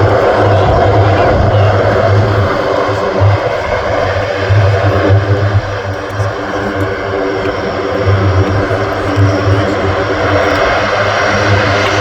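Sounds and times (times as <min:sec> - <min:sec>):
propeller engines droning: 0:00.0 - 0:12.0
pulsing low hum: 0:00.0 - 0:12.0.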